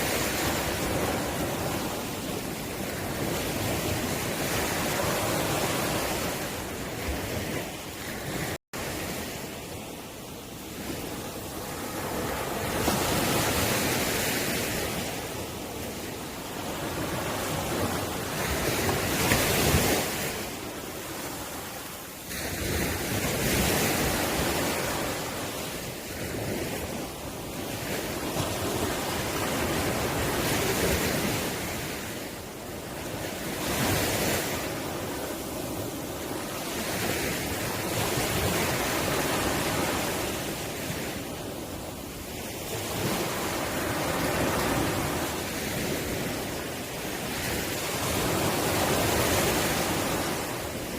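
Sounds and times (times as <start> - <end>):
ocean waves breaking on shore: 0.0 - 50.9.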